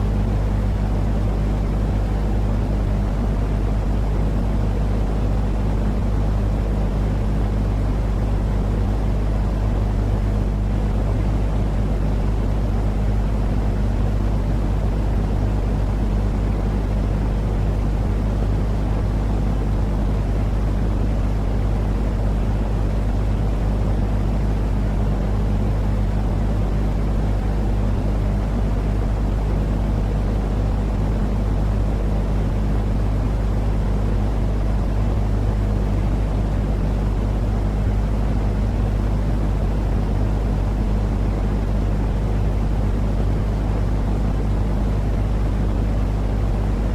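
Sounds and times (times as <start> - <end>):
low rumbling white noise: 0.0 - 46.9.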